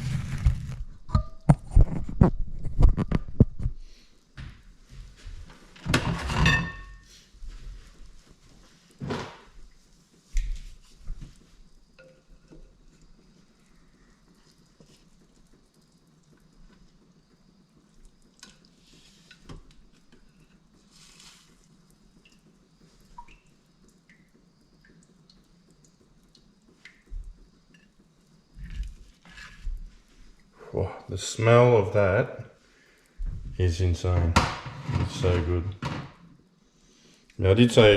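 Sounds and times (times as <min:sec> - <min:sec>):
utensils and dishes clinking: 0:06.0 - 0:07.1.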